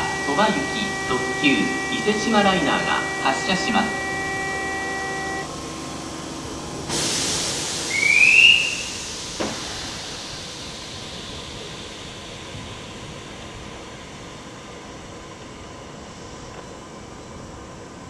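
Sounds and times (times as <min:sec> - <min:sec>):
rising whistle-like tone: 0:00.0 - 0:05.5, 0:07.9 - 0:09.2
steady tone: 0:00.0 - 0:07.0
air release hiss: 0:06.9 - 0:12.2.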